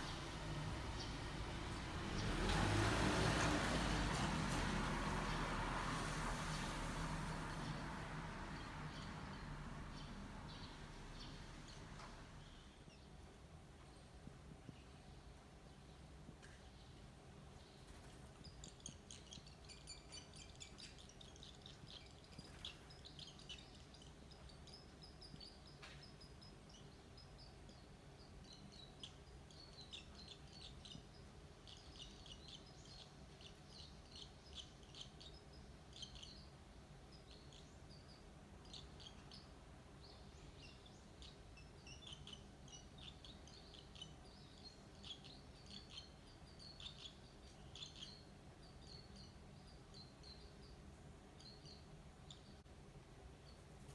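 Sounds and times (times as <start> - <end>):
nestlings chirping: 0.0 - 2.9, 6.5 - 13.0, 17.8 - 50.7.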